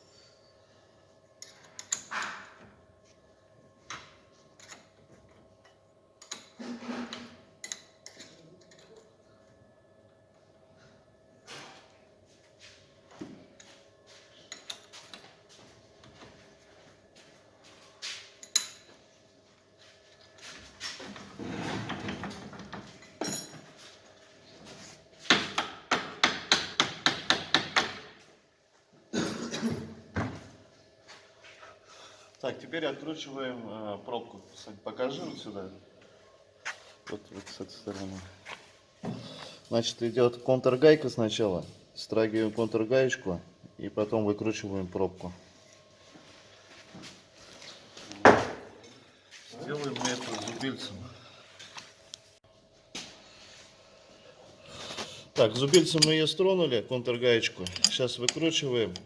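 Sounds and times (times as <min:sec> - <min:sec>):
metal parts clattering: 0:57.5 - 0:58.6
metallic clicks and knocks: 0:57.6 - 0:59.0.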